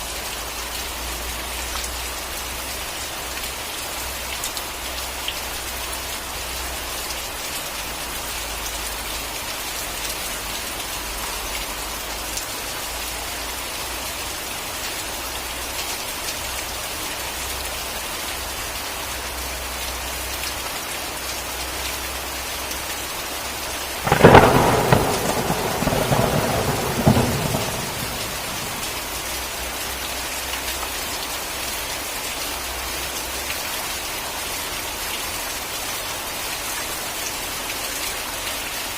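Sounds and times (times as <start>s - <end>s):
heavy rain hissing: 0.0s - 37.9s
thunder crack: 24.0s - 29.3s.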